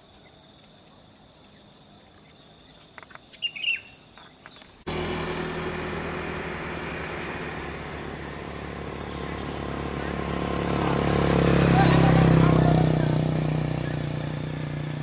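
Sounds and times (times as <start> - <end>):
insects chorus pulsing: 0.0 - 15.0
bird call: 2.2 - 4.8
vehicle engine running: 4.8 - 15.0.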